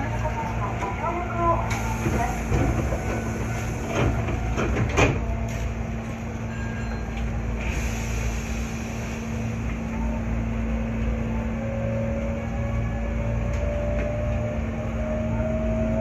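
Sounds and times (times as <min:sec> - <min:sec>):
train electrical hum: 0:00.0 - 0:16.0
train doors closing knocks: 0:01.8 - 0:05.4.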